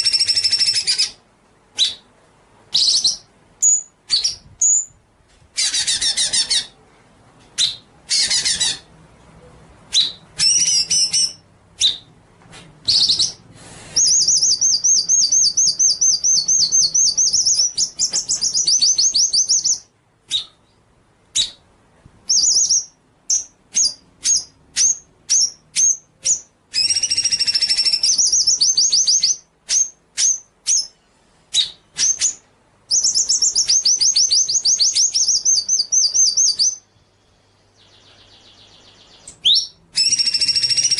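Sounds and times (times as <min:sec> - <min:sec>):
songbird trilling and chirping: 0:02.7 - 0:05.0, 0:07.6 - 0:08.9, 0:09.9 - 0:12.1, 0:14.0 - 0:20.8, 0:22.3 - 0:40.9.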